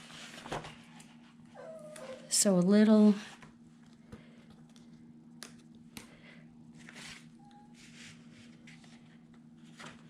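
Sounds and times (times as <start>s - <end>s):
paper rustling and scraping: 0.0s - 1.1s, 6.8s - 10.0s.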